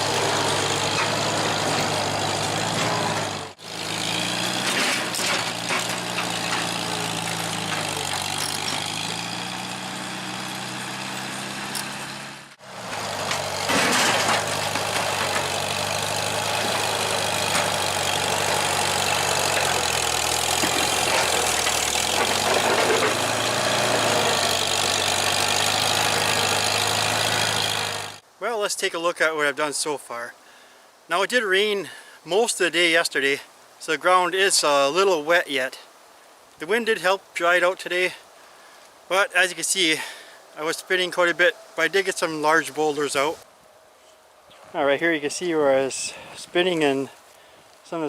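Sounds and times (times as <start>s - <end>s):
tractor engine running: 0.0s - 28.2s.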